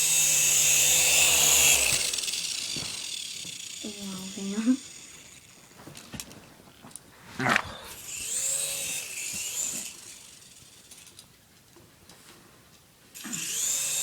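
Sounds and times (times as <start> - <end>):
rc helicopter motor whining: 0.0 - 7.0, 7.9 - 11.3, 13.2 - 14.0.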